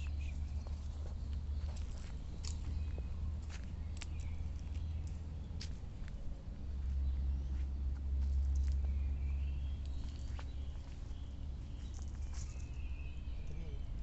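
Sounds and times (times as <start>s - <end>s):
steady low rumble: 0.0s - 14.0s
faint bird chirps: 8.7s - 14.0s.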